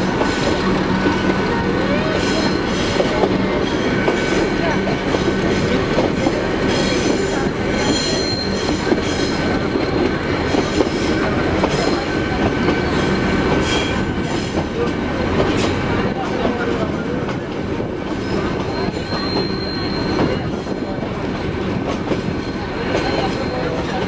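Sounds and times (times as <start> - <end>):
train wheels rumbling on rails: 0.0 - 24.0
high-pitched wheel squeal: 18.3 - 20.5.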